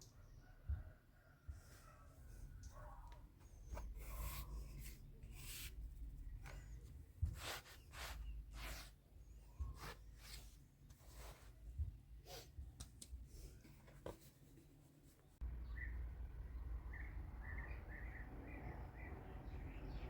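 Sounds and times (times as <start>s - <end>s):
low steady rumble: 15.4s - 20.0s.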